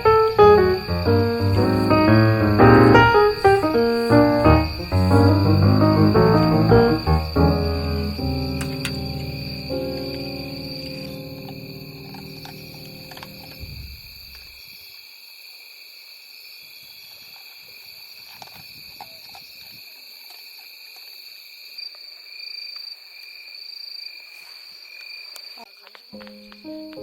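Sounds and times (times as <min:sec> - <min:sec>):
background music: 0:00.0 - 0:13.6
insects trilling: 0:00.0 - 0:27.0.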